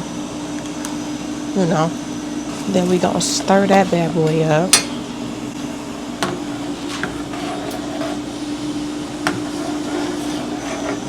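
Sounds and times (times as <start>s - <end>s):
steady mechanical hum: 0.0s - 11.0s
spoon stirring sauce: 6.2s - 11.0s.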